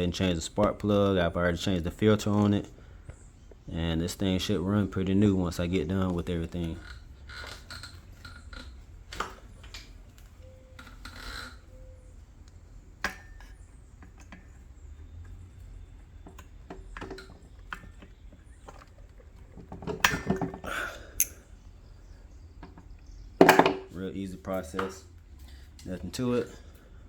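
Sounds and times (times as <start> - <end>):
low steady hum: 0.0 - 27.0
hand tools clicking and knocking: 13.0 - 15.4, 16.1 - 21.4, 22.6 - 25.0.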